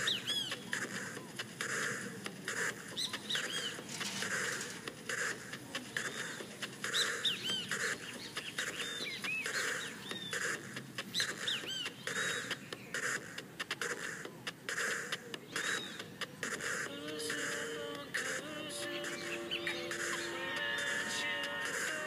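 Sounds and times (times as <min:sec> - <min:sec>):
harsh noisy bird bursts: 0:00.0 - 0:16.9
birds chirping: 0:00.0 - 0:22.0.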